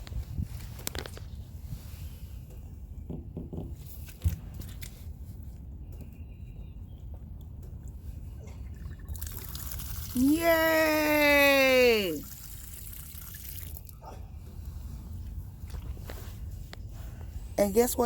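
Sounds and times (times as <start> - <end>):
rainwater running from spout: 8.8 - 14.0.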